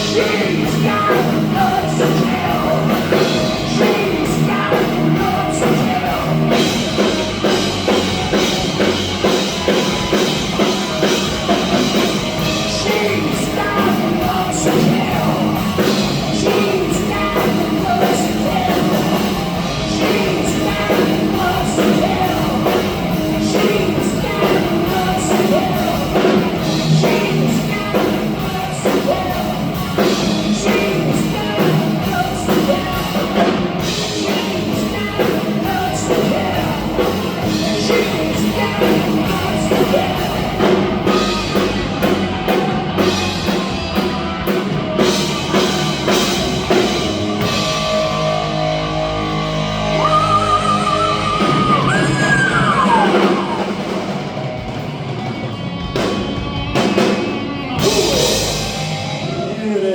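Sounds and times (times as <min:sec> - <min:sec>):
person singing: 0:00.0 - 0:08.4, 0:12.4 - 0:41.7, 0:49.8 - 0:54.2
drum kit: 0:00.0 - 0:59.9
electric guitar: 0:00.0 - 0:59.9.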